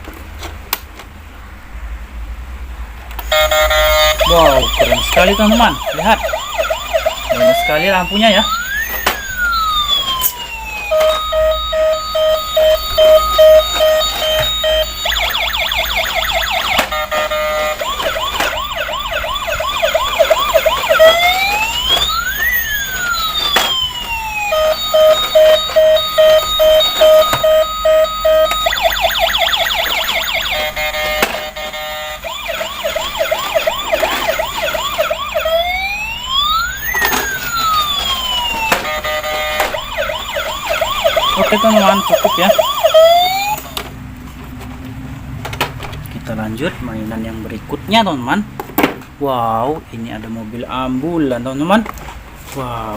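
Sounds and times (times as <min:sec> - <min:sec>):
toy police car electronic siren: 0:03.2 - 0:43.8.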